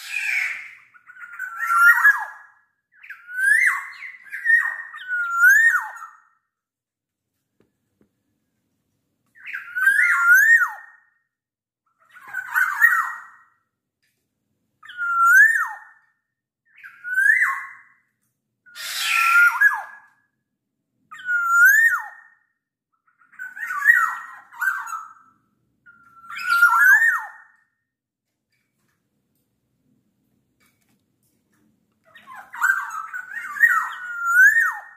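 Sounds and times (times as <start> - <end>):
bird singing whistled phrases: 0.0 - 6.4, 9.4 - 11.1, 14.8 - 16.0, 16.7 - 17.9, 21.1 - 22.5, 23.2 - 25.3, 25.9 - 27.7, 32.2 - 34.9.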